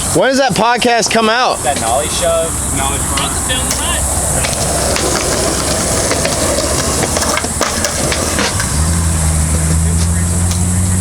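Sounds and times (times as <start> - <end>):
cicadas droning: 0.0 - 11.0
skateboard wheels rolling on concrete: 0.0 - 11.0
skateboard clacks: 3.1 - 11.0.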